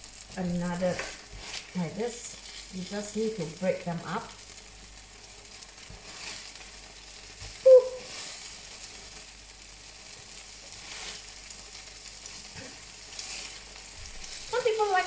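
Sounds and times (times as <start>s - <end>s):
batter sizzling in hot oil: 0.0s - 15.0s
spatula and spoon pushing batter: 0.7s - 2.7s, 5.1s - 9.3s, 10.1s - 14.6s.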